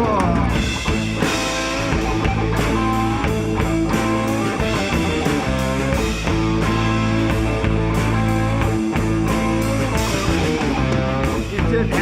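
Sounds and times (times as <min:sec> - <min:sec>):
bass guitar: 0:00.0 - 0:12.0
drum hits: 0:00.0 - 0:12.0
guitar: 0:00.0 - 0:12.0
rock band playing: 0:00.0 - 0:12.0.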